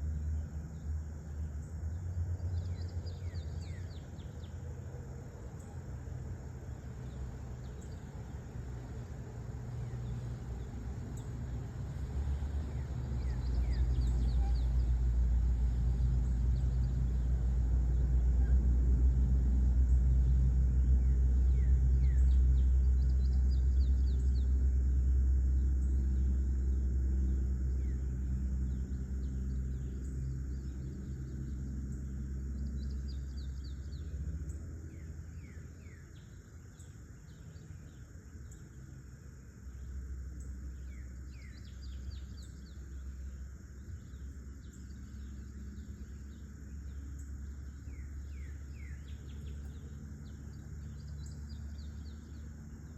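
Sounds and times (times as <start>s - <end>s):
insects droning: 0.0s - 52.9s
passing motor engine rumble: 0.0s - 52.9s
birds chirping: 9.7s - 17.6s, 39.7s - 52.9s.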